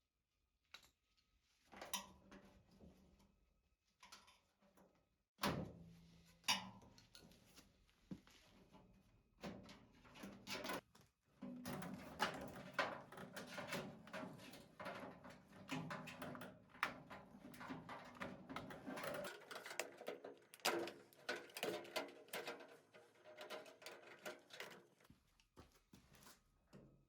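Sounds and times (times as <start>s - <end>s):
tools and parts clicking and rattling: 11.6s - 25.0s.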